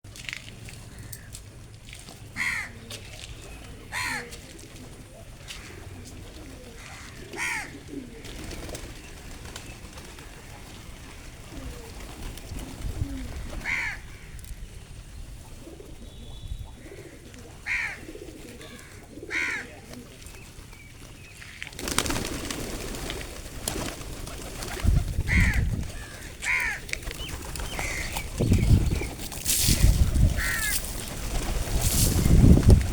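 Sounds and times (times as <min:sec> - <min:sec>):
pigeons cooing: 0:02.4 - 0:14.4, 0:15.3 - 0:20.3, 0:21.5 - 0:32.9.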